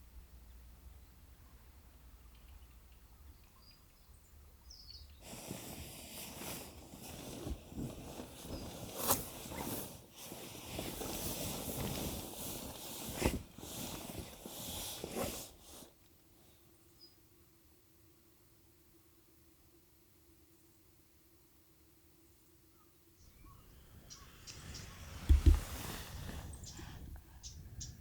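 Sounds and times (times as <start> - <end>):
close-up rustling and handling: 5.2 - 16.0, 23.6 - 27.5
low faint rumble: 23.3 - 28.0.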